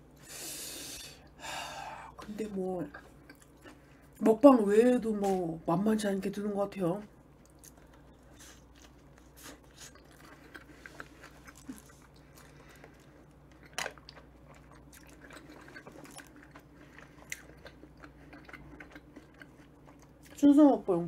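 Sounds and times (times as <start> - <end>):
chewing a soft sandwich: 7.2 - 20.4.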